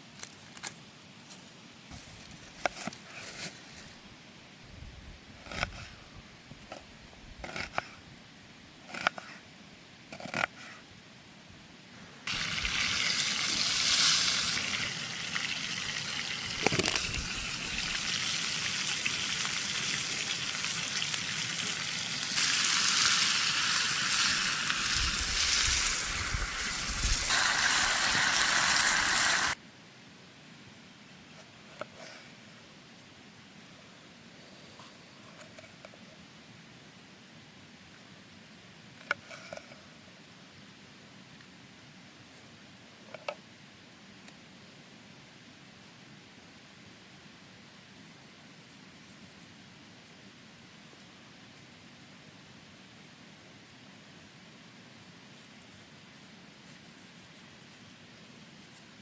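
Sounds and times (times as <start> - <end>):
steak sizzling in frying pan: 12.3 - 29.6.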